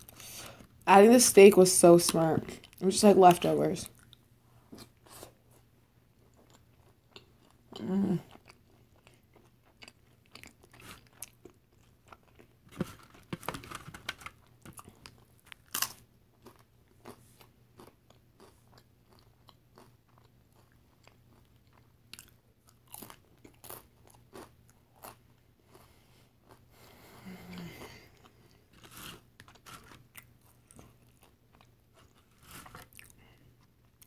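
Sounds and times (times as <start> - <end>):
tortilla chips crunching: 8.3 - 25.8, 28.2 - 34.0.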